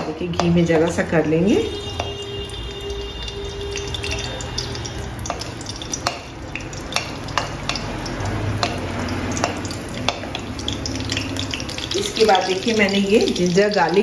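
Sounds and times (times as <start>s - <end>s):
chillies sizzling in hot oil: 0.0s - 14.0s
wooden spoon knocking on pan: 6.9s - 7.9s.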